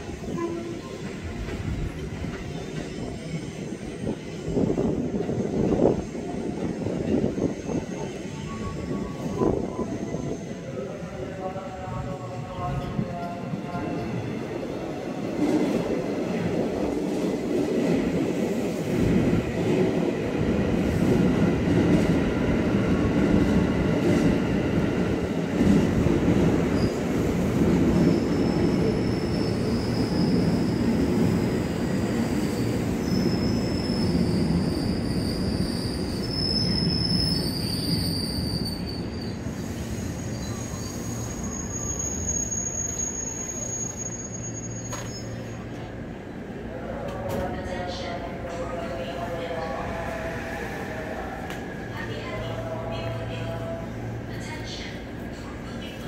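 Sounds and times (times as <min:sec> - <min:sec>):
train wheels rumbling on rails: 0:00.0 - 0:10.5
brake squeals: 0:33.1 - 0:45.6.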